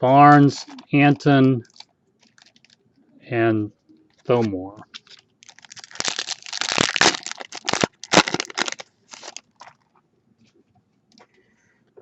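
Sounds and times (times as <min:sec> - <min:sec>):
foil wrapper crinkling: 0:01.6 - 0:02.8, 0:04.9 - 0:09.9.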